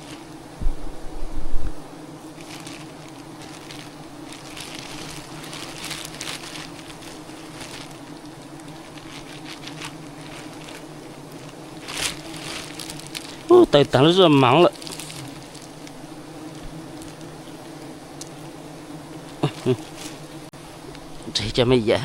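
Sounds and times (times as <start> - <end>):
rustling and crackling: 0.0 - 21.2
bees buzzing: 0.0 - 22.0
low thump: 0.6 - 1.8.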